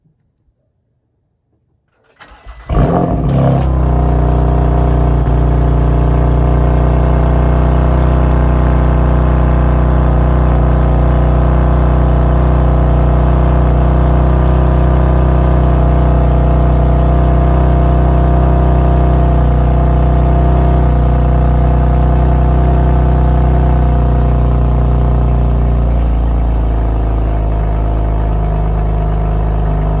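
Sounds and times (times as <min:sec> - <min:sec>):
car engine cranking: 0:02.0 - 0:05.2
car engine idling: 0:02.2 - 0:30.0.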